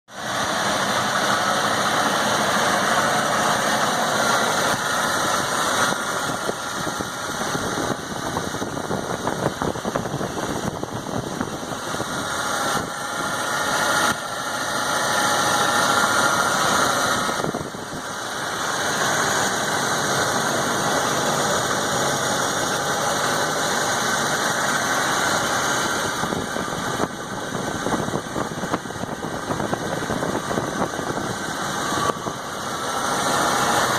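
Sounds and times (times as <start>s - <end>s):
truck engine idling: 0.1s - 33.9s.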